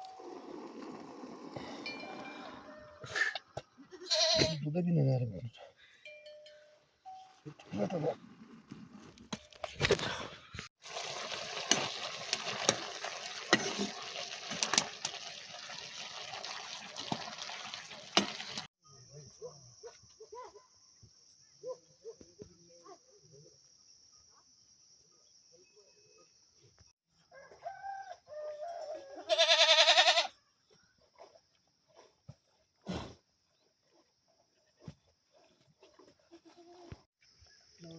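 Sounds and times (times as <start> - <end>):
goat bleating: 3.8 - 4.6, 29.2 - 30.3.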